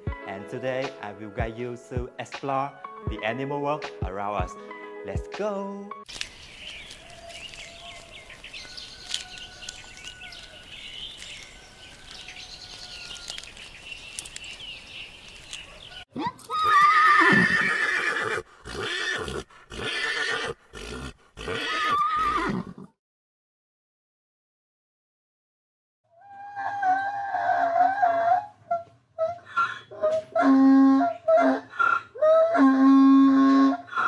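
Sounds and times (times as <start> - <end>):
faint outdoor background: 0.0 - 23.0
horse whinnying: 16.5 - 23.0.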